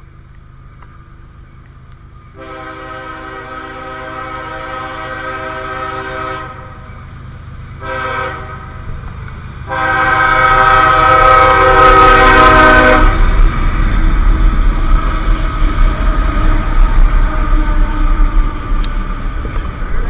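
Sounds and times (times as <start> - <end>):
low locomotive rumble: 0.0 - 20.0
locomotive air horn blasts: 2.4 - 6.9, 7.8 - 9.0, 9.7 - 13.7, 16.0 - 19.0.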